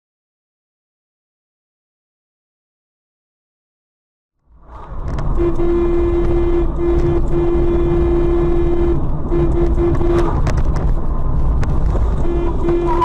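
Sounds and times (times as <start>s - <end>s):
traffic and engine noise: 4.4s - 13.0s
car horn honking: 5.1s - 10.6s, 12.1s - 13.0s.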